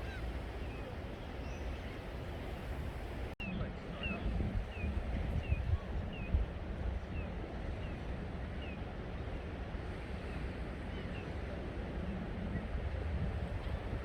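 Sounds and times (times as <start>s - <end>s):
wind rumbling on microphone: 0.0s - 8.8s, 9.8s - 14.0s.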